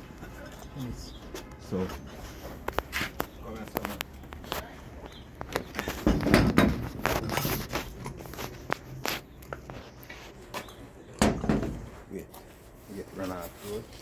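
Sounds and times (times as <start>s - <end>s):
footsteps: 0.0s - 14.0s
parts and tools clunking: 2.6s - 12.1s.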